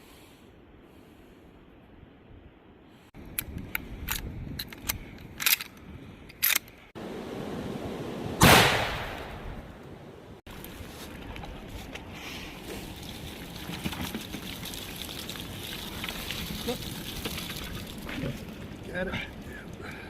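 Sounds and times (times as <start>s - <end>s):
rifle shot: 8.4s - 9.6s.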